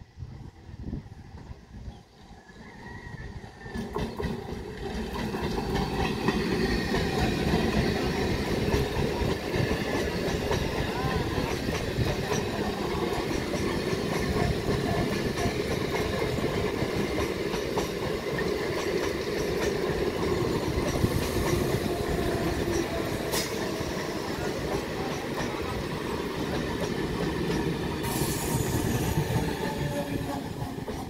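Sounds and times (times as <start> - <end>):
train wheels rumbling and clattering: 3.6 - 31.0
high hiss: 28.0 - 29.2.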